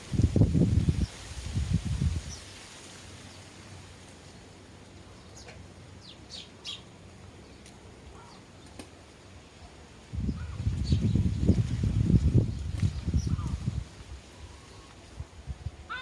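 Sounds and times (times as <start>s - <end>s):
sparrows chirping: 2.2s - 2.6s, 4.2s - 8.8s, 9.5s - 15.1s.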